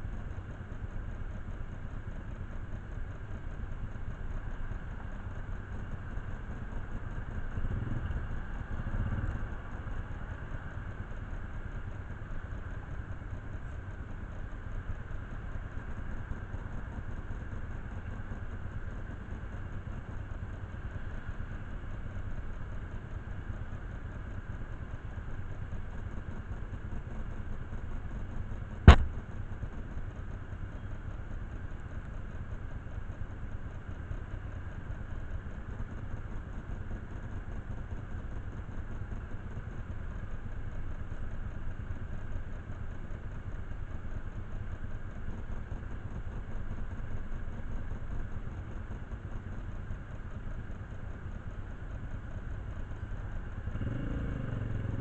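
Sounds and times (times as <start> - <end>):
motorcycle engine idling: 0.0 - 55.0
sharp knock: 28.9 - 29.1.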